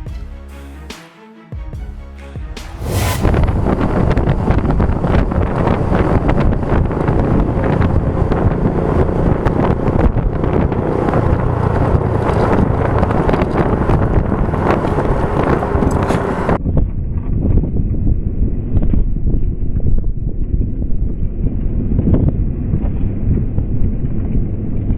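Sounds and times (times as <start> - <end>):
wind buffeting microphone: 2.9 - 24.9
motorcycle running: 3.0 - 16.6.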